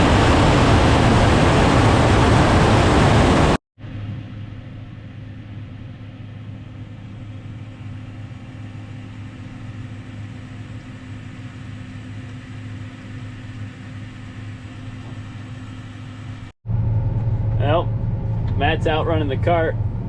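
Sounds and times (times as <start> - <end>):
diesel engine droning: 12.6 - 20.0.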